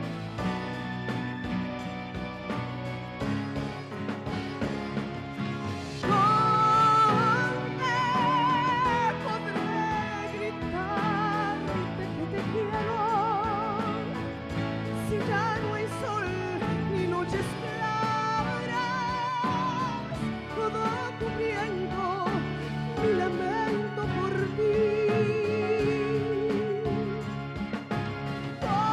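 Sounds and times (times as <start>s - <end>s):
instrumental accompaniment: 0.0s - 28.9s
woman singing a ballad: 6.0s - 14.2s, 15.0s - 27.4s.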